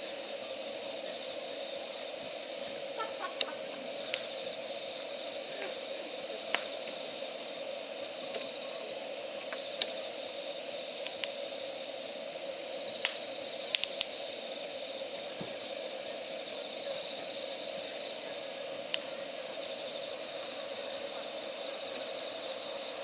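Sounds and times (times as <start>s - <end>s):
fire hissing: 0.0s - 23.0s
campfire crackling and snapping: 4.1s - 4.4s, 6.5s - 6.9s, 11.0s - 11.4s, 13.0s - 14.3s.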